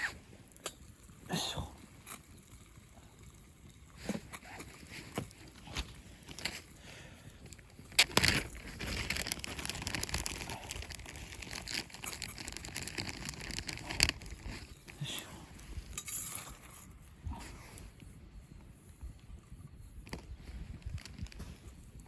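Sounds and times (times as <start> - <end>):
rustling and crinkling: 3.9 - 18.2, 19.8 - 22.0.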